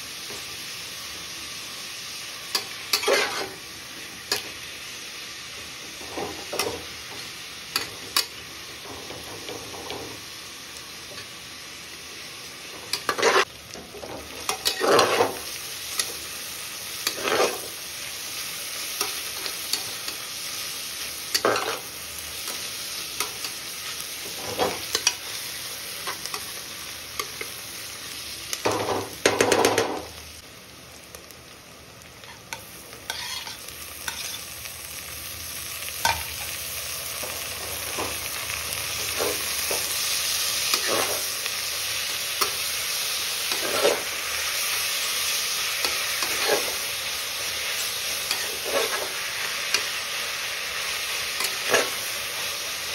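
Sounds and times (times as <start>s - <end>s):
food sizzling in hot oil: 0.0s - 52.9s
spatula scraping pan: 2.9s - 3.6s, 12.9s - 16.2s, 17.0s - 17.8s, 21.3s - 21.9s, 33.1s - 34.4s, 39.0s - 41.3s, 43.4s - 44.1s, 45.8s - 46.8s, 47.7s - 49.9s, 51.4s - 52.1s.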